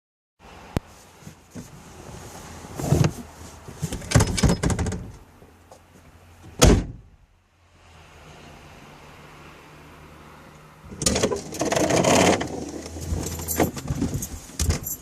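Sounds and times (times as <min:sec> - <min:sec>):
car door shutting thud: 0:06.6 - 0:07.1
knocks and rustling: 0:11.0 - 0:15.0.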